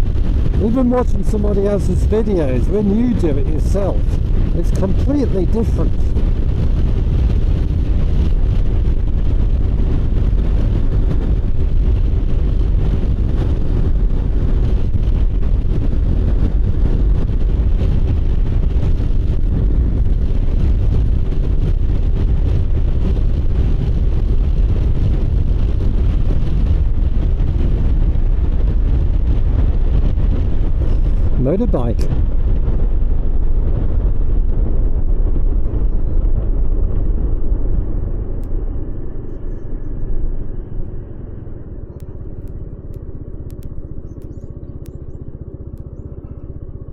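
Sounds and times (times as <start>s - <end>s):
motorcycle engine drone: 0.0s - 46.9s
wind rumble on microphone: 0.0s - 46.9s.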